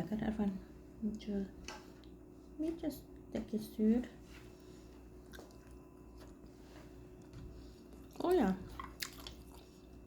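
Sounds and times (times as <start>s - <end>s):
low steady hum: 0.0s - 10.0s
chewing mouth clicks: 7.9s - 9.8s.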